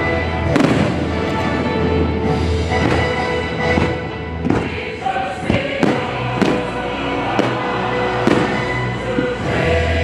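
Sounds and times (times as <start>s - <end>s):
fireworks bangs: 0.4s - 2.1s, 2.7s - 9.3s
loud show music over speakers: 2.3s - 10.0s.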